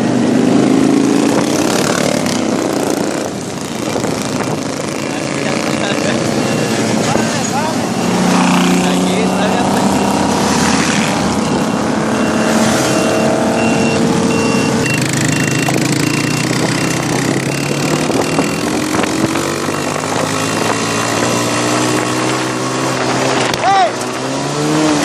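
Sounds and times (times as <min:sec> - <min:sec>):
motorcycle engines idling and revving: 0:00.0 - 0:25.0
repeating high beep: 0:06.2 - 0:07.5, 0:11.2 - 0:18.8.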